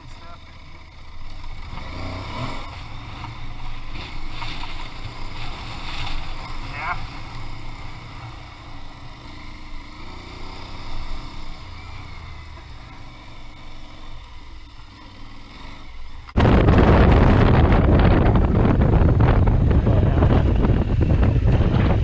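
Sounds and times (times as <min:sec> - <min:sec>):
motorcycle engine rumbling: 0:00.0 - 0:22.0
wind buffeting microphone: 0:16.4 - 0:22.0.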